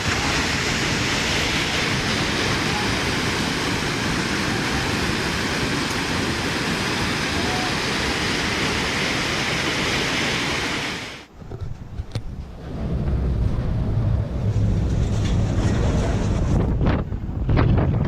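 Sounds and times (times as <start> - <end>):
rushing floodwater roar: 0.0 - 11.3.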